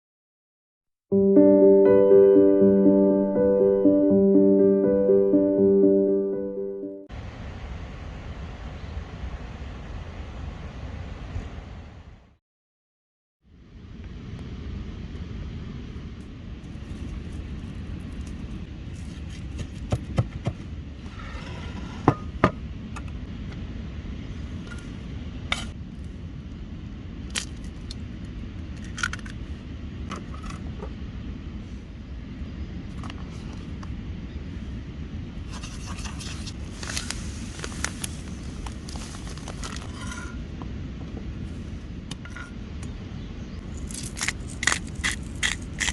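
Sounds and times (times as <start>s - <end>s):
steady low rumble: 13.4s - 21.2s, 22.2s - 45.9s.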